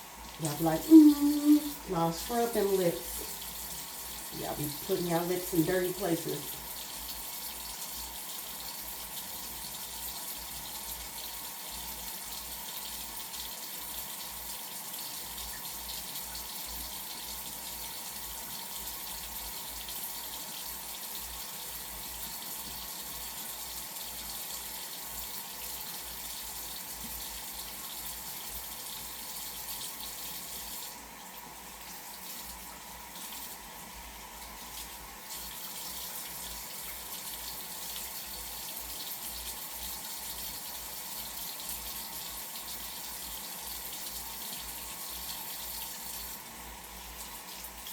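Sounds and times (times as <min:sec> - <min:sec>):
tap water running into sink: 0:00.0 - 0:47.9.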